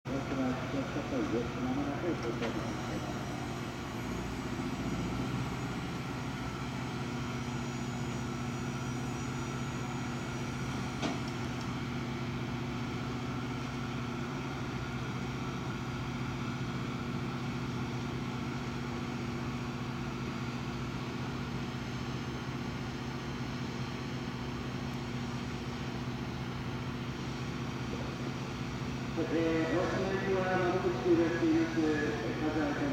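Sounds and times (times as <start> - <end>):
gas turbines humming and whining: 0.1 - 32.9.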